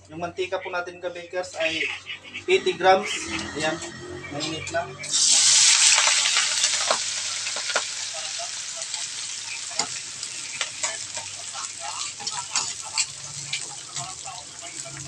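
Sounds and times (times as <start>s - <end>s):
onion sizzling in hot oil: 5.0s - 15.0s
spatula scraping a pan: 9.2s - 15.0s.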